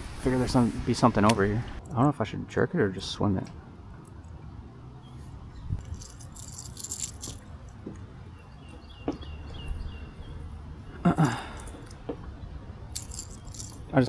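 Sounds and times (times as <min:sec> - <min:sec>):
fishing tackle rattling and clicking: 0:05.8 - 0:08.1, 0:11.2 - 0:12.1, 0:12.8 - 0:14.0.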